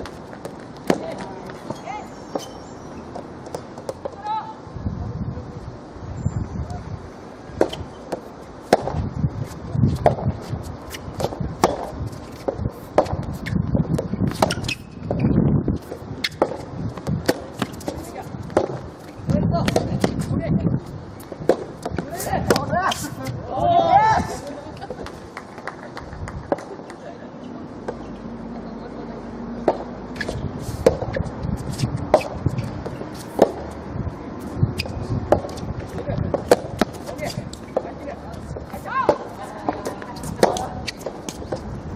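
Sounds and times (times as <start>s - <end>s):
rackets hitting tennis ball: 0.0s - 4.3s, 7.5s - 20.4s, 21.1s - 23.4s, 29.6s - 41.8s.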